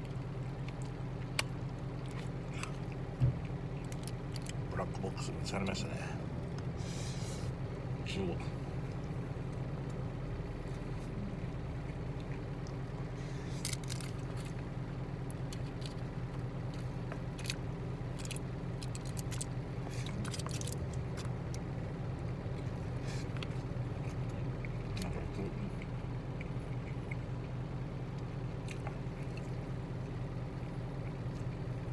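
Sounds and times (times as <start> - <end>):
idling truck engine hum: 0.0 - 31.9
person chewing: 0.4 - 4.7, 8.8 - 14.7, 15.3 - 21.7, 22.5 - 27.6.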